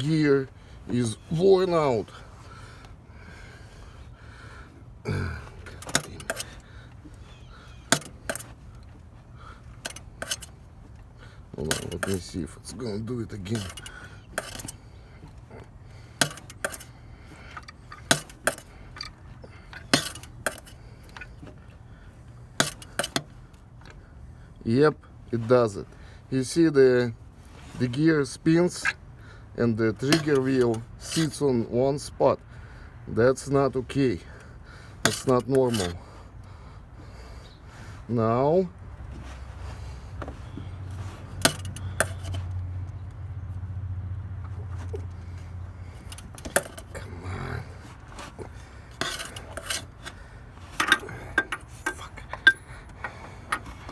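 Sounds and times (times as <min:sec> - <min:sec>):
car engine humming: 0:00.0 - 0:26.4, 0:32.4 - 0:53.9
hand tools clinking on metal: 0:05.1 - 0:21.7, 0:22.6 - 0:23.4, 0:27.6 - 0:29.0, 0:29.9 - 0:31.5, 0:33.9 - 0:36.1, 0:40.5 - 0:42.6, 0:45.8 - 0:53.9
sharp engine clicks: 0:05.6 - 0:09.0, 0:13.3 - 0:21.4, 0:41.3 - 0:47.0.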